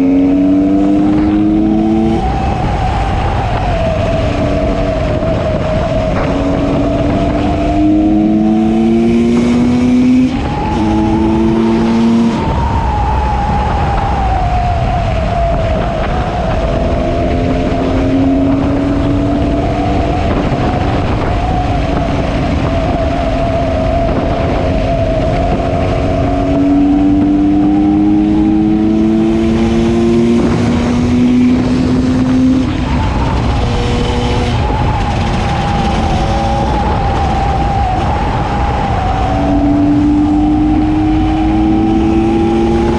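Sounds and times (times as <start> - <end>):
two-stroke motorcycle engine revving: 0.0 - 2.3, 6.2 - 12.4, 26.0 - 37.0.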